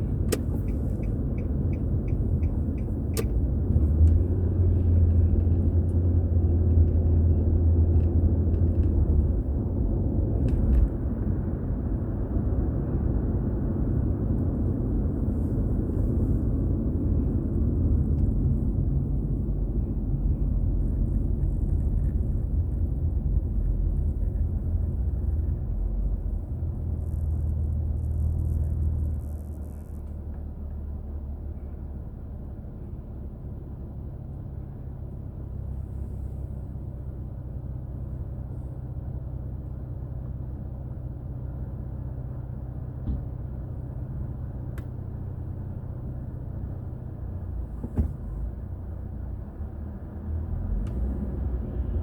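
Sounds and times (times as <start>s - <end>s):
car tyres and engine rumbling: 0.0s - 52.0s.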